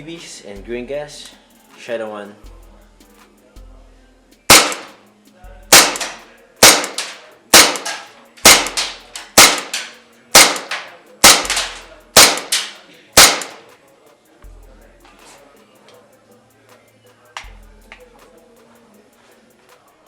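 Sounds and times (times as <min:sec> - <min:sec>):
airsoft pistol shots: 0:04.5 - 0:05.0, 0:05.7 - 0:13.7.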